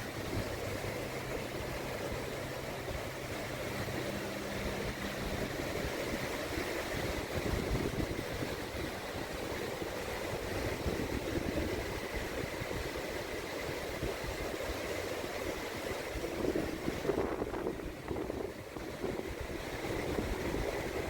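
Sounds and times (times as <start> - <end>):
small waves on sandy beach: 0.0 - 21.0
wind buffeting microphone: 0.0 - 21.0.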